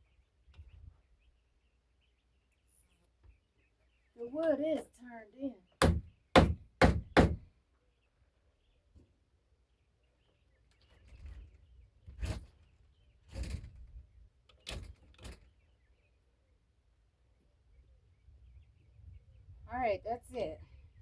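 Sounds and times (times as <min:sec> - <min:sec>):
hammer strike on wood: 0:05.8 - 0:07.4.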